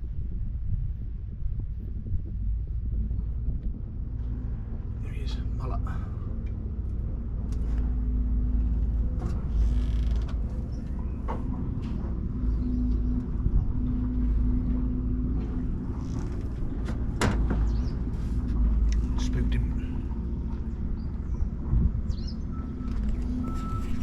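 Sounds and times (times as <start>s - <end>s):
short clicks and creaks: 8.6s - 12.0s, 22.7s - 24.0s
digger diesel engine running: 10.3s - 24.0s.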